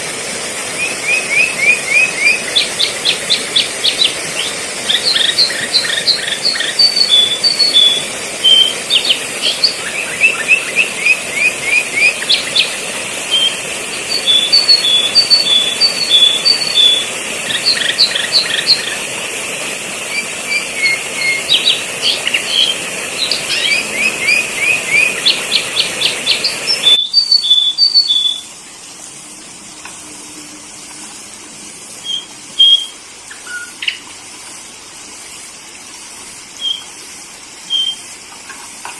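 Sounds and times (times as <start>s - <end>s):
background hiss: 0.0s - 38.9s
bulbul chirps and trills: 0.8s - 19.1s, 20.0s - 28.5s.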